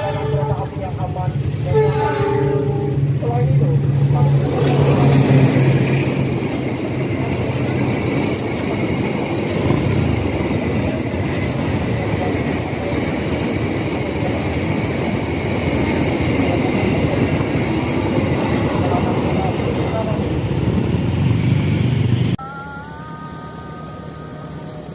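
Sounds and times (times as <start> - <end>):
train wagons rumbling on rails: 0.0 - 22.4
faint high-pitched ring: 22.4 - 24.9.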